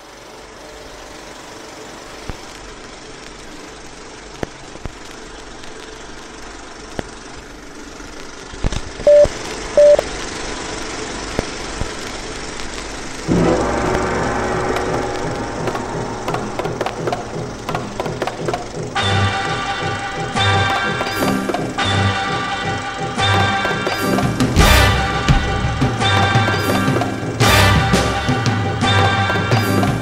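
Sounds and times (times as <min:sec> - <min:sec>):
film soundtrack hiss: 0:00.0 - 0:30.0
short loud beeps: 0:09.1 - 0:10.0
low rumble: 0:12.6 - 0:20.4
music: 0:13.3 - 0:30.0.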